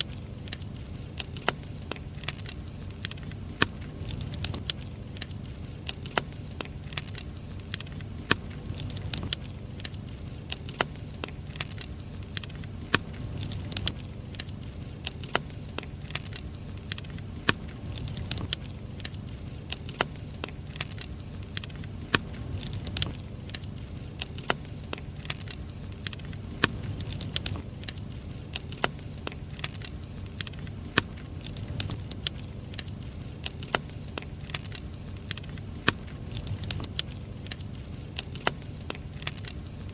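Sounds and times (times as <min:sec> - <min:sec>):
firewood crackling and popping: 0:00.0 - 0:39.9
low rumble of flames: 0:00.0 - 0:39.9.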